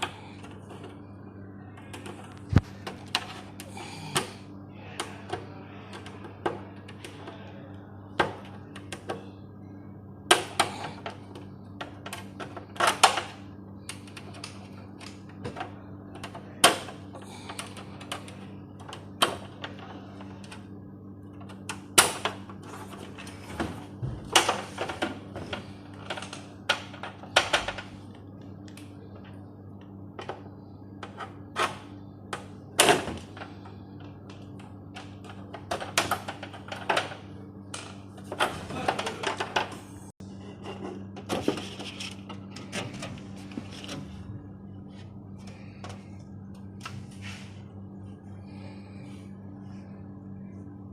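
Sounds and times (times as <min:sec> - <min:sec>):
steady electrical hum: 0:00.0 - 0:50.9.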